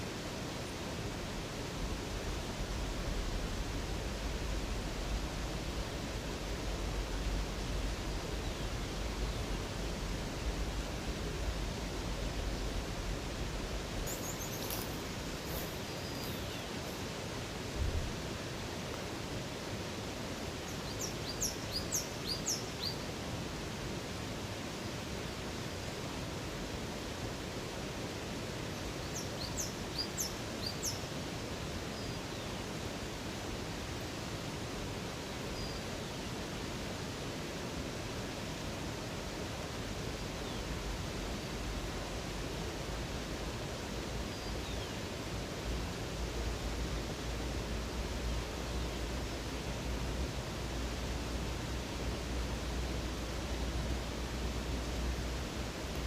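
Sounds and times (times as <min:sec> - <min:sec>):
flowing water rushing: 0:00.0 - 0:56.0
faint bird chirps: 0:14.0 - 0:17.0, 0:20.7 - 0:23.1.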